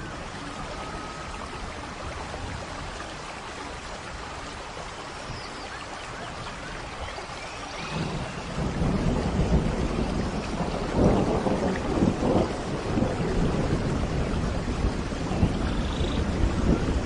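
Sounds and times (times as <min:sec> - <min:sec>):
steady rain falling: 0:00.0 - 0:17.0
low thunder rumbles: 0:07.7 - 0:17.0.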